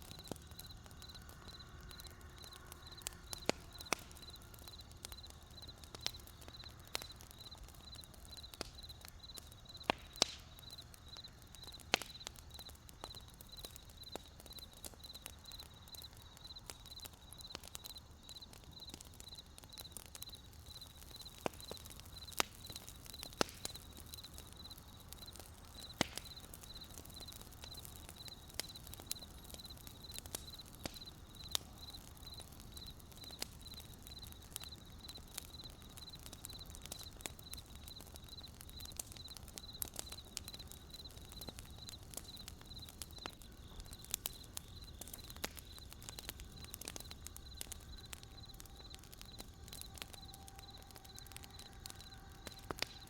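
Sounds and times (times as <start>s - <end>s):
crickets chirping: 0.0s - 53.0s
wood fire crackling and popping: 0.0s - 53.0s.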